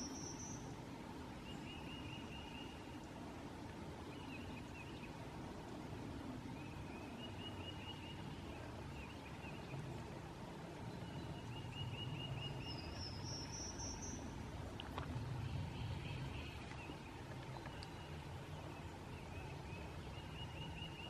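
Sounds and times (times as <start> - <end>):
low background rumble: 2.3 - 21.0.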